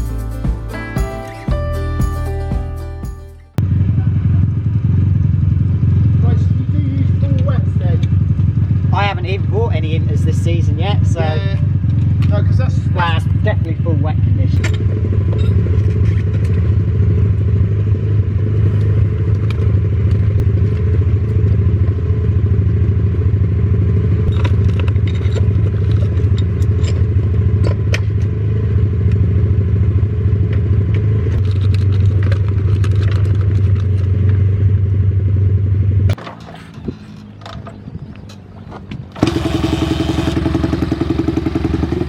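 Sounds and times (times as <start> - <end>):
vehicle engine running: 0.0 - 42.0
small clicks and rattles: 24.3 - 27.8, 31.4 - 34.4.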